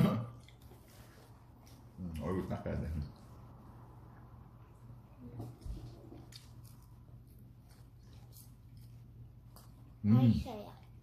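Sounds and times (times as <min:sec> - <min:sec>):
person chewing food: 0:00.3 - 0:02.4, 0:05.8 - 0:10.0.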